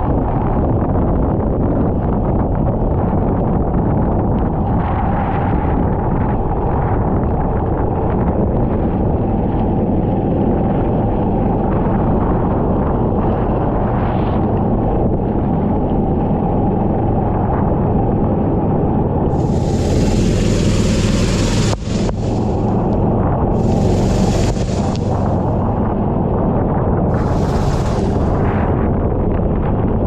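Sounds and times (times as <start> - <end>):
wind buffeting microphone: 0.0 - 30.0
kart engine: 19.3 - 26.3, 27.1 - 28.8.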